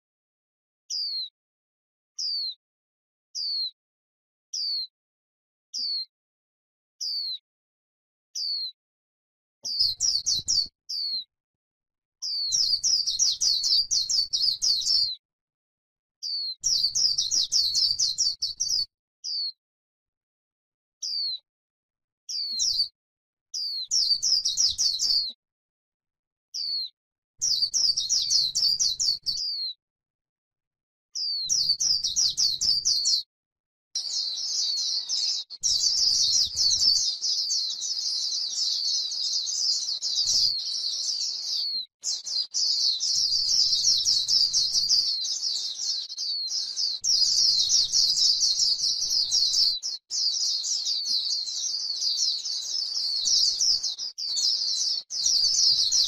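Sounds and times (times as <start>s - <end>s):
bird twittering warble: 9.7s - 11.3s, 34.0s - 56.0s.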